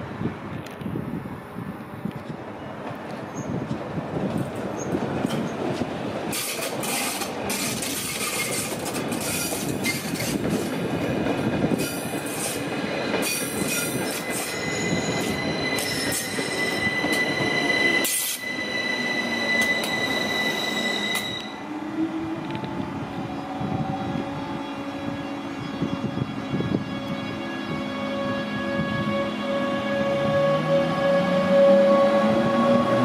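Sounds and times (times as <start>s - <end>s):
train wheels clicking over joints: 2.3s - 18.6s
high brake squeal: 6.4s - 10.4s, 11.8s - 21.7s.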